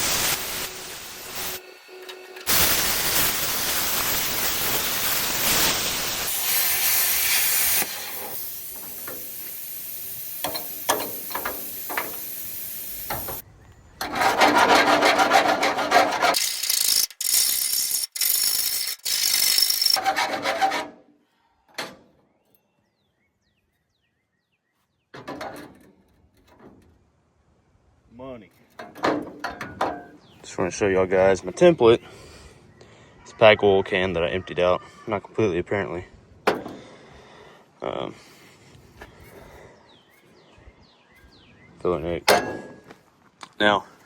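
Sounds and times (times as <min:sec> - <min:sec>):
plasma cutter hissing: 0:00.0 - 0:01.7, 0:02.4 - 0:13.4
scraping and clicks: 0:14.0 - 0:21.0.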